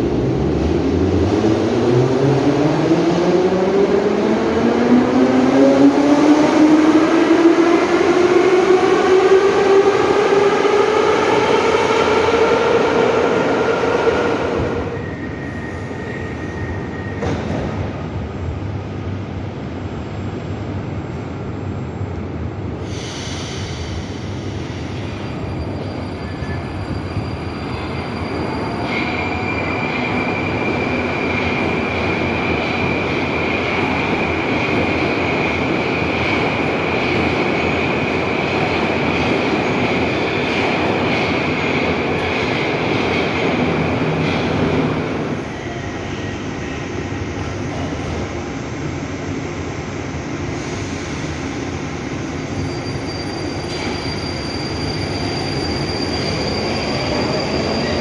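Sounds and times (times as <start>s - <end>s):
high-pitched wheel squeal: 52.4s - 58.0s.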